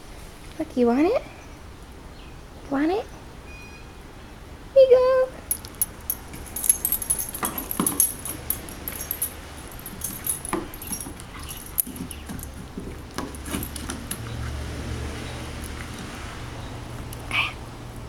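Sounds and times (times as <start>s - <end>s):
collar tags jingling: 5.4s - 14.5s
dog chewing a stick: 9.4s - 16.2s.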